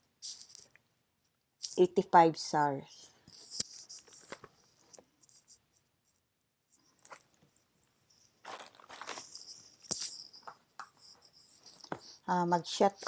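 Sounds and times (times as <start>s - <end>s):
rustling of packaging: 3.3s - 5.5s, 6.8s - 12.3s.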